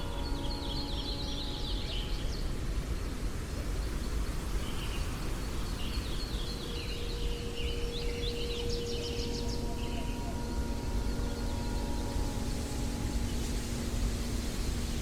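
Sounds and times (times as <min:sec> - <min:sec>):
songbirds chirping: 0:04.1 - 0:15.0.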